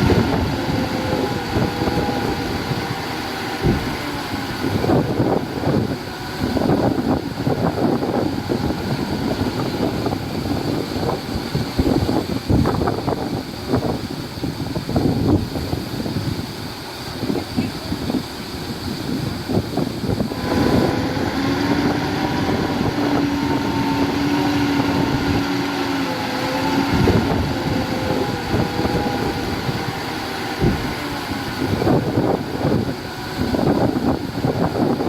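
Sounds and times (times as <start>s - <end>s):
diesel machinery engine hum: 0.0s - 35.0s.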